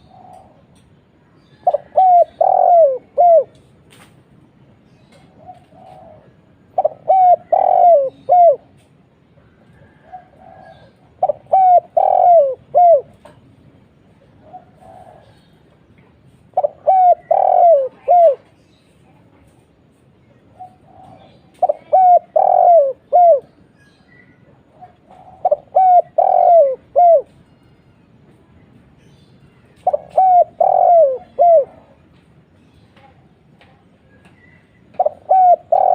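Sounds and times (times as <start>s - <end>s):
dove cooing: 0.0s - 0.7s, 1.6s - 3.6s, 5.2s - 8.8s, 9.7s - 13.4s, 14.4s - 15.5s, 16.5s - 18.6s, 20.5s - 23.6s, 24.6s - 27.4s, 29.8s - 32.0s, 34.9s - 35.9s.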